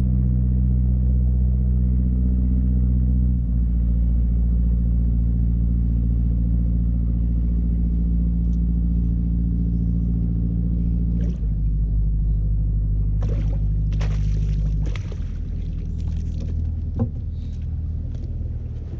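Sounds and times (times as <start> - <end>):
boat engine running: 0.0 - 18.9.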